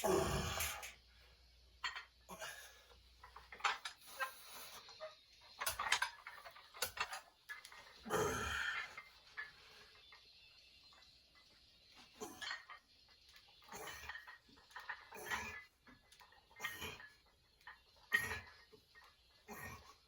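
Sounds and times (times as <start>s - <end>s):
person grunting: 0.0s - 0.8s, 8.1s - 8.8s.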